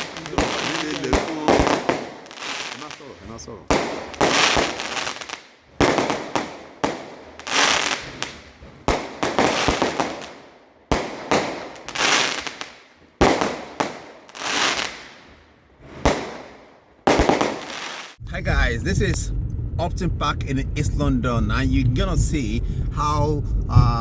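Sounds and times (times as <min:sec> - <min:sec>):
fireworks bangs: 0:00.0 - 0:22.8.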